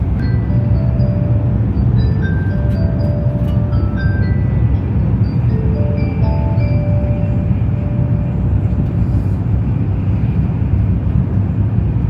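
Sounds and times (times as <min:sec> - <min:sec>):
announcement chime: 0:00.0 - 0:08.6
train rumble inside cabin: 0:00.0 - 0:12.0.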